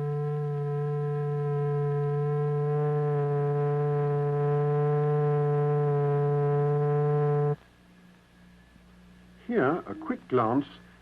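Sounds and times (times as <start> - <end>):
low electronic tone: 0.0 - 7.6.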